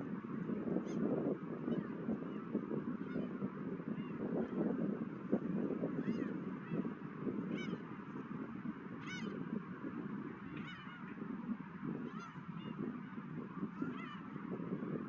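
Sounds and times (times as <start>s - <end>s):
seagulls calling: 8.9s - 9.6s, 10.2s - 15.0s.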